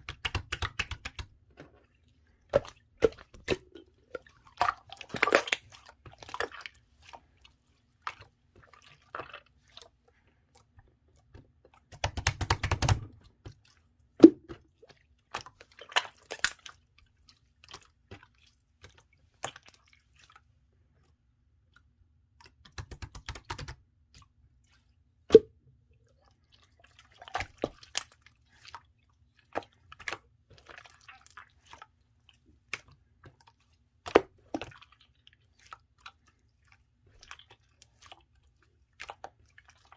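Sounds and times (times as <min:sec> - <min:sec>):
slime squishing with sticky clicks: 0:00.0 - 0:01.8, 0:32.6 - 0:36.2.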